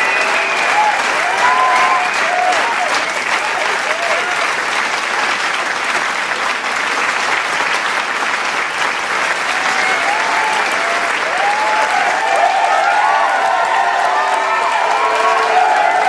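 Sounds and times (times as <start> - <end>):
voices cheering and calling out: 0.0 - 4.4, 9.5 - 16.0
crowd applauding: 0.0 - 16.0.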